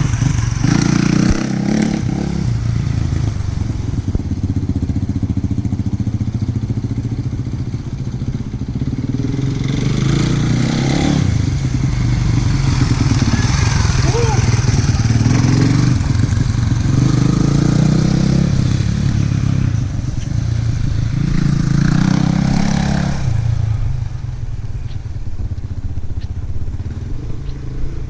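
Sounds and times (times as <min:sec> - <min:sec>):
dirt bike engine revving: 0:00.0 - 0:02.5, 0:09.0 - 0:19.7.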